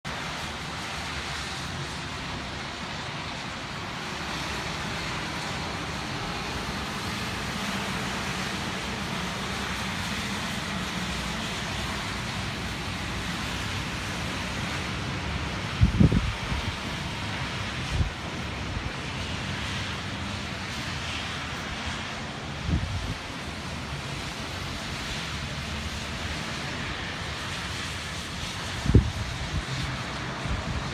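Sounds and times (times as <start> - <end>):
wind gusts thumping microphone: 13.5 - 21.2, 21.9 - 24.9, 27.8 - 30.9
wind rushing: 15.3 - 17.2.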